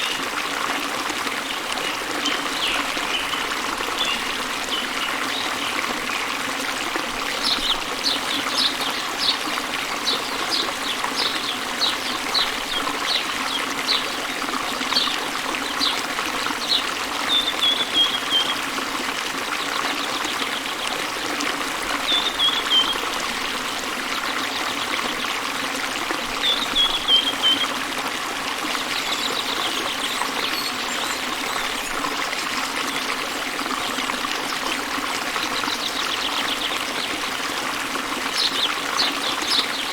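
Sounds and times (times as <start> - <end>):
waterfall rushing: 1.2 - 18.8
bird chirping and trilling: 16.7 - 18.6.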